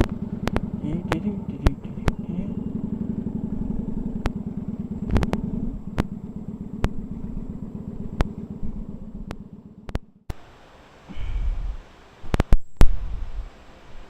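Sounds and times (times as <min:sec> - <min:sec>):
sharp clicks: 0:00.0 - 0:02.3, 0:04.0 - 0:07.3, 0:08.0 - 0:10.1
motorcycle engine running: 0:00.0 - 0:10.5.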